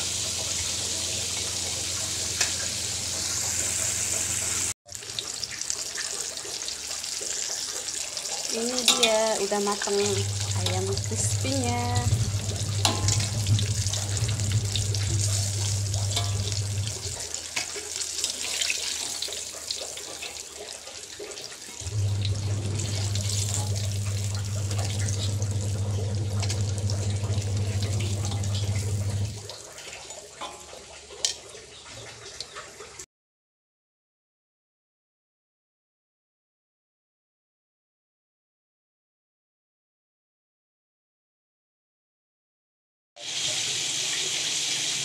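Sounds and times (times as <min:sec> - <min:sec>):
chicken deep-frying sizzle: 0:00.0 - 0:33.1, 0:43.2 - 0:45.0
steady low hum: 0:10.1 - 0:17.2
metal spatula scraping: 0:12.3 - 0:17.8.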